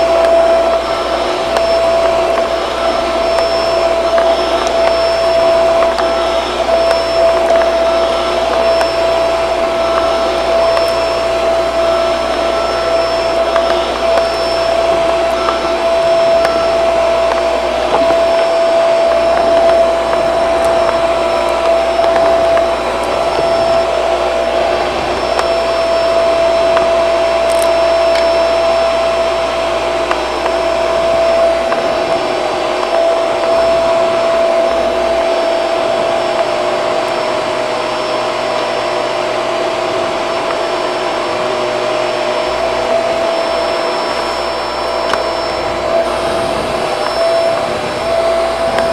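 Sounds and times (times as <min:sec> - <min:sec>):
vacuum cleaner motor whine: 0:00.0 - 0:48.9.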